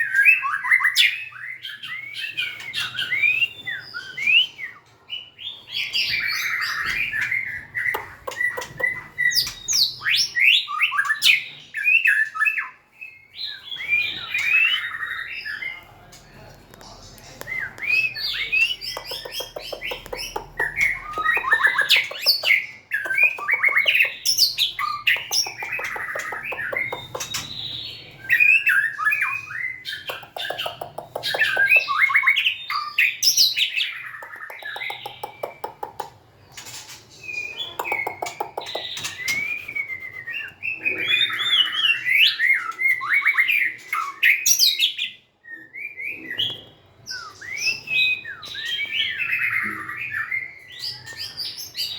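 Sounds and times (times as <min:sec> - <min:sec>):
bird singing whistles and trills: 0:17.4 - 0:33.8, 0:37.2 - 0:51.9.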